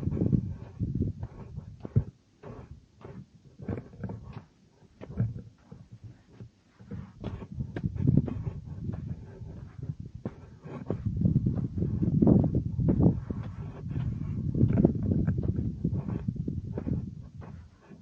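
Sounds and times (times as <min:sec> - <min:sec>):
wind buffeting microphone: 0:00.0 - 0:02.1, 0:06.9 - 0:17.7.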